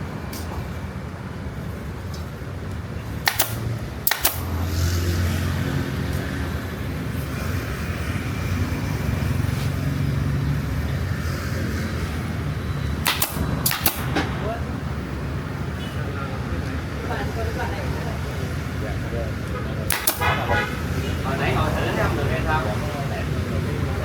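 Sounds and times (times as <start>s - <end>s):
sharp clicks: 3.2s - 4.5s, 13.0s - 14.2s, 19.9s - 20.3s.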